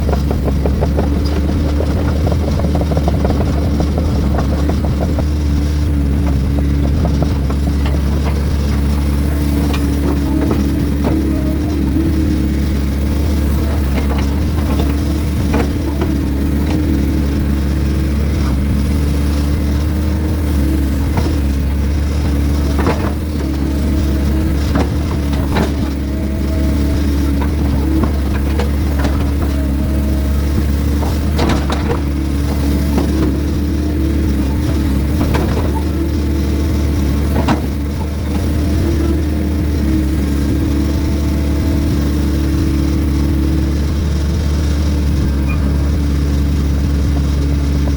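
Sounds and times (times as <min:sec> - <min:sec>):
short knocks and clunks: 0:00.0 - 0:43.6
heavy diesel engine running: 0:00.0 - 0:47.9.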